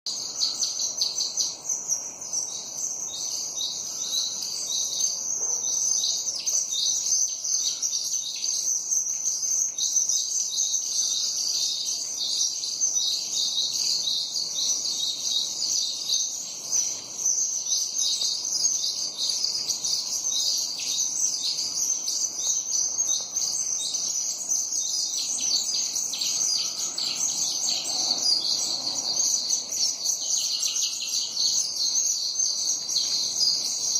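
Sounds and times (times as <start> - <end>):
sparrows chirping: 0.1 - 33.9.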